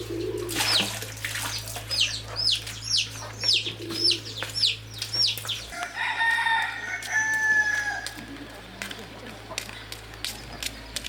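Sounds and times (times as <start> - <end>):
small bird chirping: 0.1 - 6.0
rooster crowing: 5.7 - 8.3.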